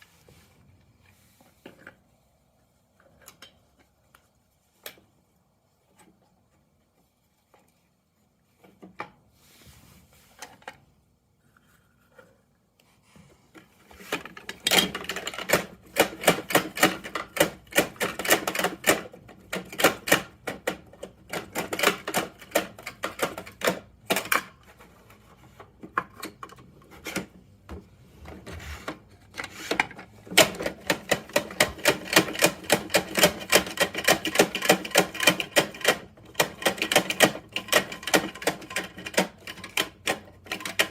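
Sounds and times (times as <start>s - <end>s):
plastic toy truck clicking: 13.6s - 27.3s, 28.8s - 40.9s.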